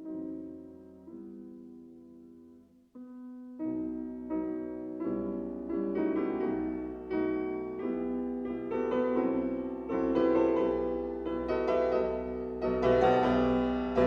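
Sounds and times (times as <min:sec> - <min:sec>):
solo classical piano: 0:00.0 - 0:14.0.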